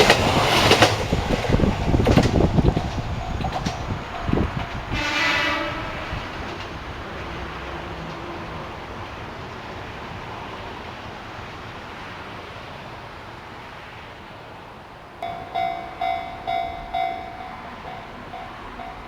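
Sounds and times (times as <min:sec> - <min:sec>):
train wheels running: 0:00.0 - 0:10.6, 0:15.2 - 0:19.0
train horn: 0:04.7 - 0:06.5.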